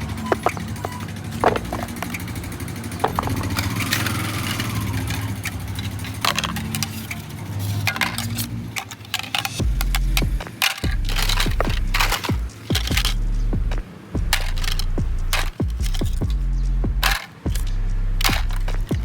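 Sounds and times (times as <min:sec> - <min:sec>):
small motor running: 0:00.0 - 0:07.3.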